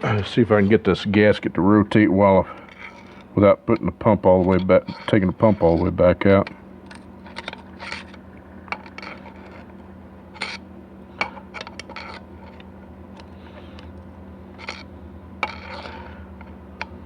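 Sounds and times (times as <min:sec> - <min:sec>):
steady low hum: 0:00.0 - 0:17.0
metal parts clicking and scraping: 0:04.4 - 0:09.7, 0:11.2 - 0:13.3.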